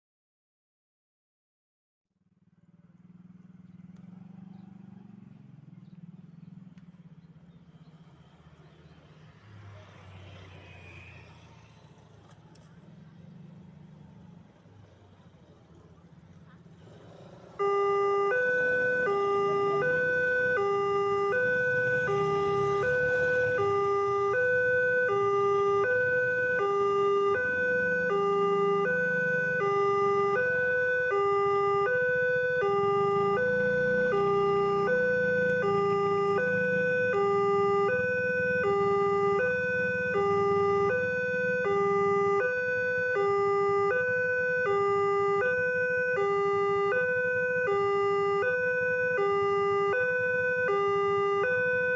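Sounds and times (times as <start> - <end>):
two-tone crossing alarm: 17.5 - 51.9.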